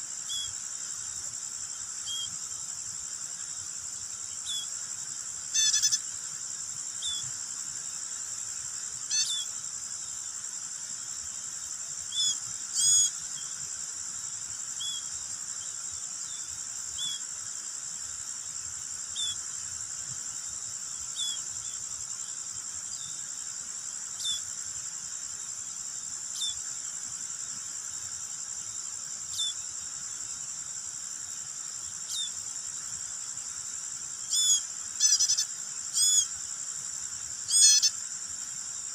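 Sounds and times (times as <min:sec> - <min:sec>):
insects droning: 0:00.0 - 0:38.9
baby bird cheeping: 0:05.6 - 0:06.0, 0:34.3 - 0:36.3, 0:37.5 - 0:37.9.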